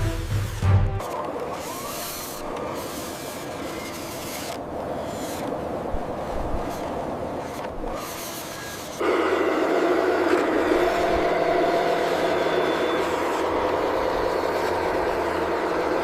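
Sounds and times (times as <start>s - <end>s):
truck engine running: 9.0s - 16.0s.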